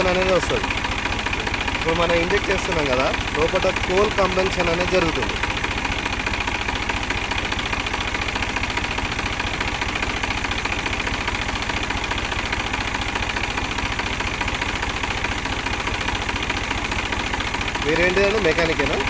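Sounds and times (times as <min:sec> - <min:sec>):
tractor diesel engine idling: 0:00.0 - 0:19.0.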